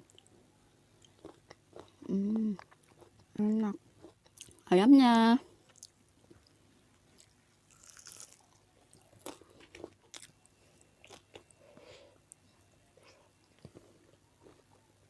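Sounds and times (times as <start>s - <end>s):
person chewing fried chicken: 1.0s - 3.3s, 5.7s - 11.6s.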